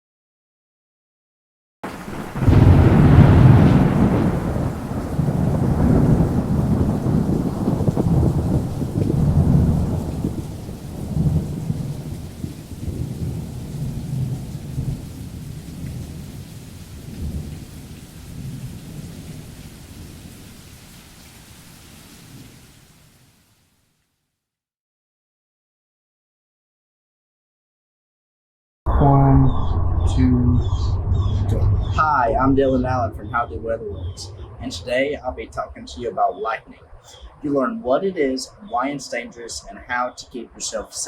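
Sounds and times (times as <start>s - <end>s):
thunder clap: 1.8s - 20.8s, 28.9s - 38.6s
rolling thunder: 1.8s - 20.9s, 28.9s - 37.6s
rain falling: 1.8s - 23.9s, 30.1s - 41.0s.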